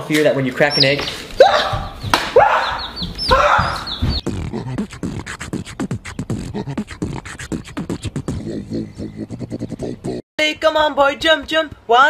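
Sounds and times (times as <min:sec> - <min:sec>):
beatboxing mouth clicks and pops: 0:04.2 - 0:10.2.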